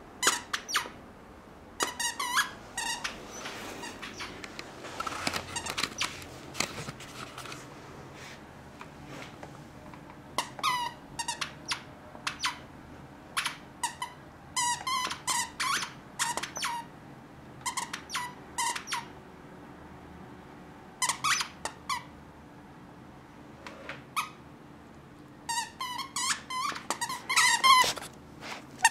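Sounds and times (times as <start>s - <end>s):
squeaky toy squeaking: 0.2s - 1.0s, 1.8s - 4.3s, 10.4s - 12.6s, 13.4s - 16.9s, 17.6s - 19.1s, 21.0s - 22.1s, 24.2s - 24.4s, 25.5s - 28.0s.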